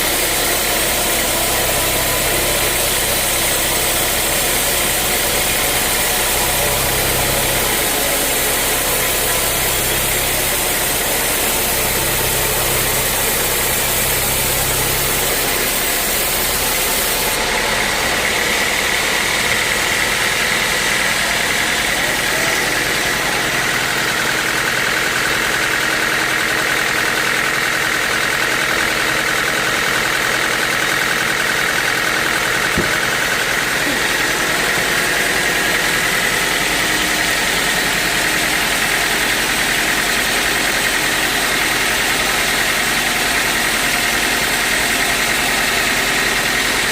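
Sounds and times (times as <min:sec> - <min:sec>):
high whine: 0:00.0 - 0:19.0
sawmill engine droning: 0:00.0 - 0:46.9.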